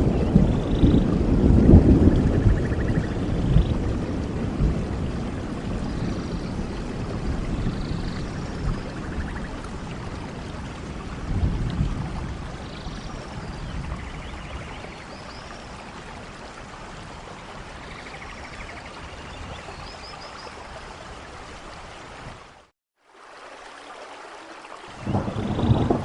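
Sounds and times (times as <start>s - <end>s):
low thunder rumble: 0.0s - 16.3s, 25.0s - 26.0s
rain falling in a forest: 0.0s - 26.0s.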